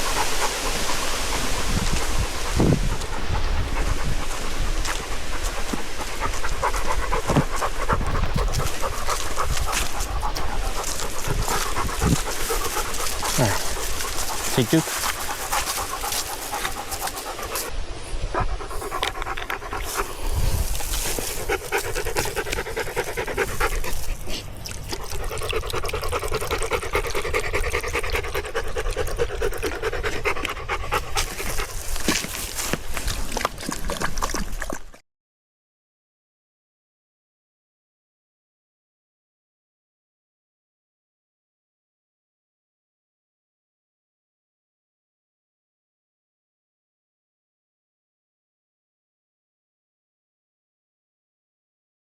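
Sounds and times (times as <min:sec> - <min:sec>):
dog panting: 0:00.0 - 0:35.0.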